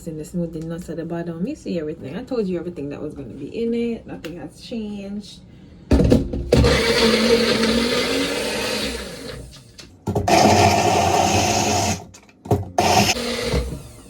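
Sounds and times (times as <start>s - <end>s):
blender running: 6.5s - 9.6s, 10.2s - 14.0s.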